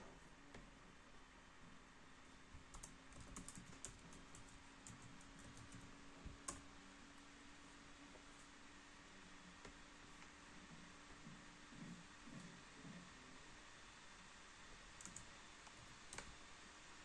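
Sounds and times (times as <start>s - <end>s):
faint steady hum: 0.0s - 17.0s
laptop keyboard typing: 2.5s - 6.7s, 14.8s - 16.5s.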